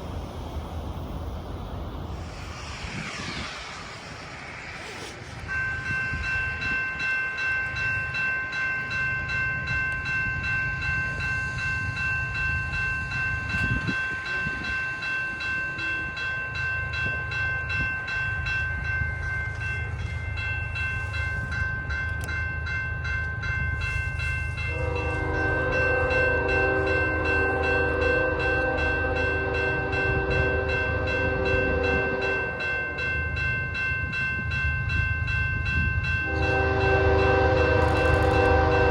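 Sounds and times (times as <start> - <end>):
diesel locomotive engines rumbling: 0.0 - 38.9
level-crossing bell ringing: 4.8 - 38.3
train horn blast: 24.6 - 32.5, 36.2 - 38.9.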